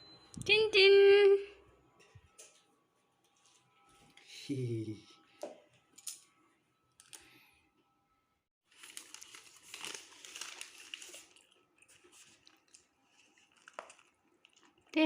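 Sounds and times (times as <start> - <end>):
crinkling and rustling: 8.7 - 15.0.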